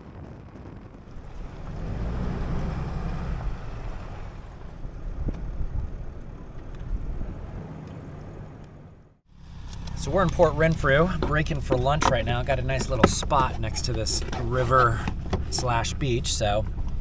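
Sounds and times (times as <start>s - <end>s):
wind on microphone: 0.0s - 7.8s
road noise: 0.0s - 17.0s
vehicle driving: 0.6s - 17.0s.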